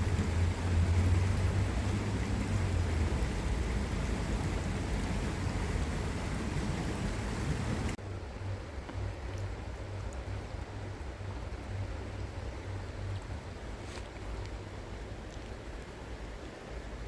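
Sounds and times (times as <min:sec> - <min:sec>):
flowing stream rushing: 0:00.0 - 0:08.0
deep rumble: 0:00.0 - 0:13.6.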